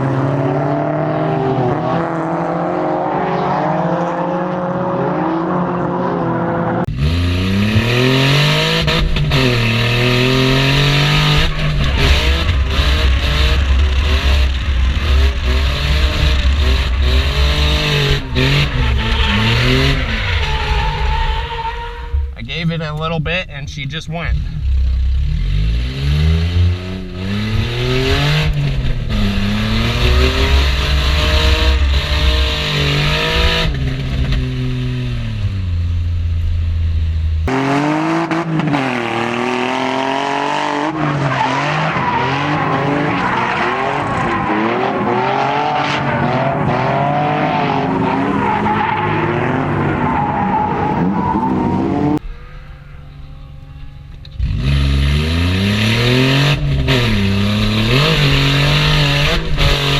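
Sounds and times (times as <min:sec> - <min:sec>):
car engine revving: 0:00.0 - 0:59.9
tyres squealing: 0:18.2 - 0:22.5.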